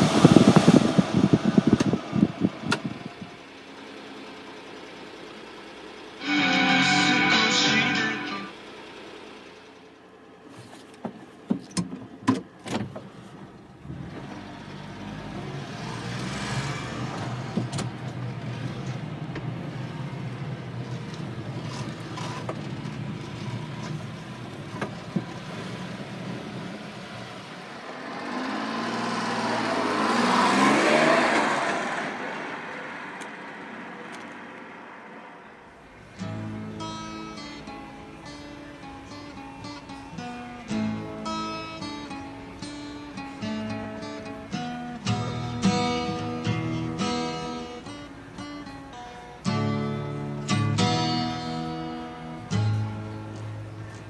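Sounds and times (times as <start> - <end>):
small truck engine running: 0.0 - 54.0.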